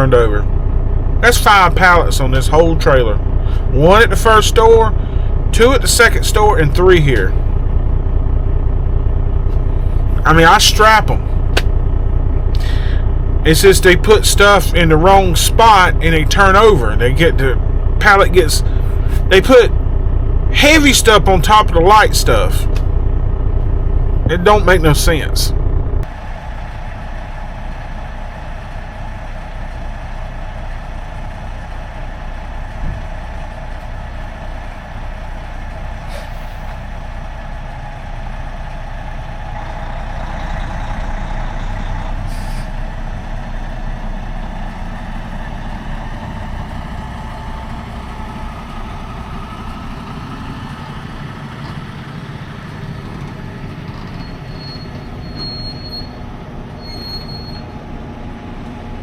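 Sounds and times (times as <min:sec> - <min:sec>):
truck engine and road rumble: 0:00.0 - 0:59.0
thin high squeal: 0:54.1 - 0:56.2, 0:56.8 - 0:57.7.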